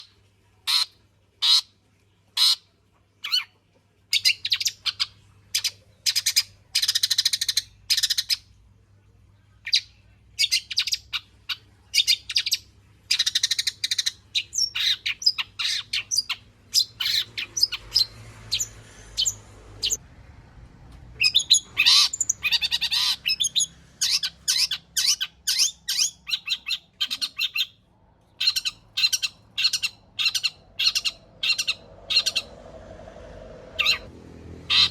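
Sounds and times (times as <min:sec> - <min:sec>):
bird harsh chattering phrases: 0:09.7 - 0:20.0, 0:21.2 - 0:27.8, 0:28.4 - 0:32.5, 0:33.8 - 0:34.1, 0:34.7 - 0:34.9.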